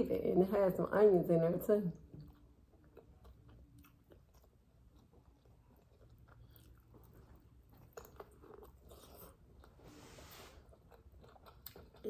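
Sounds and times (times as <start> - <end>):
chewing food: 1.9 - 9.8, 10.6 - 12.0.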